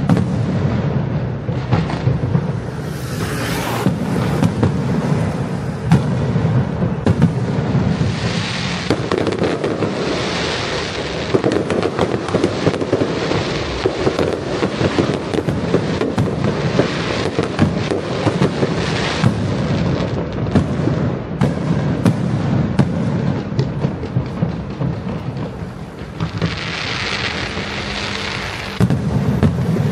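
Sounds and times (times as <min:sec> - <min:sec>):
fireworks hissing: 0:00.0 - 0:20.2, 0:23.4 - 0:29.9
fireworks bangs and crackles: 0:00.0 - 0:29.9.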